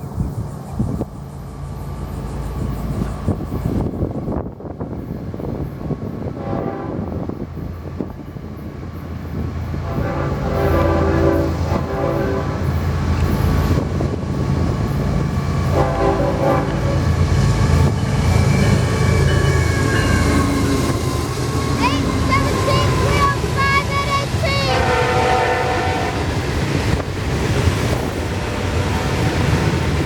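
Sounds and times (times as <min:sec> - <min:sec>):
diesel locomotives rumbling: 0:00.0 - 0:30.0
locomotive air horn: 0:06.4 - 0:07.2, 0:09.8 - 0:12.8, 0:15.6 - 0:17.2, 0:24.6 - 0:26.3.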